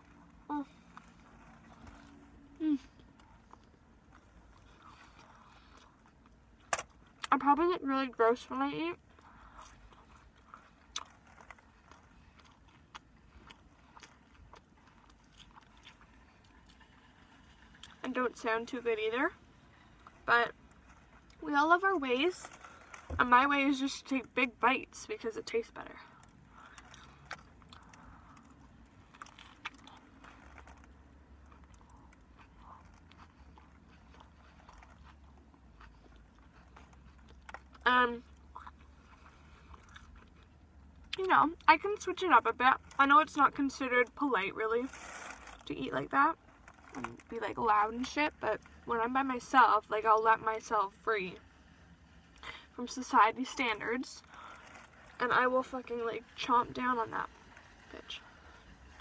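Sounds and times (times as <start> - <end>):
person chewing wetly: 0.0 - 7.3, 9.0 - 18.0, 26.1 - 41.2.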